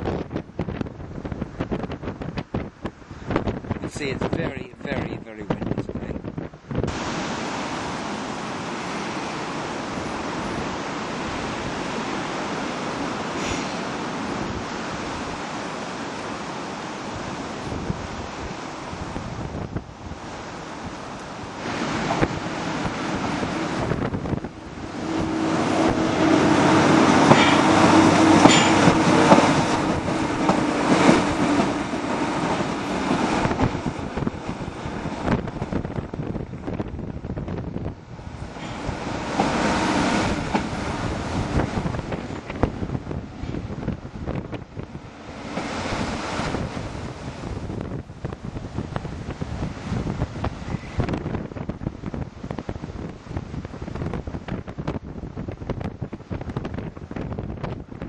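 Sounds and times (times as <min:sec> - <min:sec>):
strong wind on microphone: 0:00.0 - 0:58.0
train wheels clacking over rails: 0:24.8 - 0:35.7, 0:38.4 - 0:42.7.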